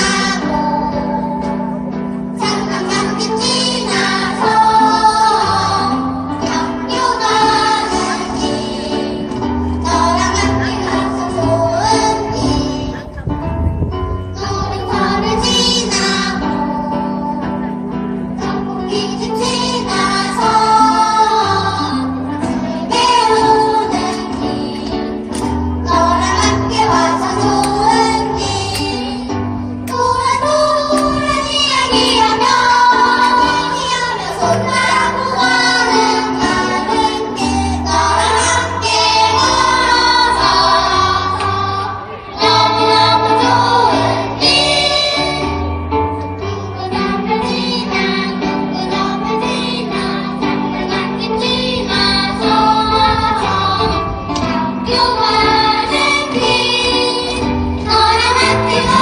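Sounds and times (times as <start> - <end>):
children's choir singing: 0.0 - 13.3, 14.2 - 59.0
instrumental accompaniment with bass: 0.0 - 59.0.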